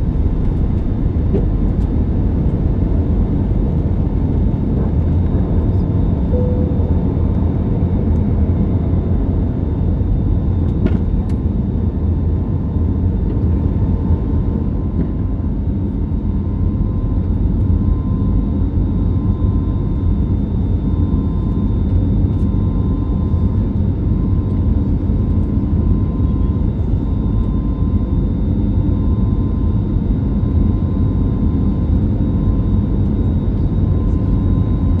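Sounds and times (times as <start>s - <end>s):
faint steady whine: 0.0s - 11.4s.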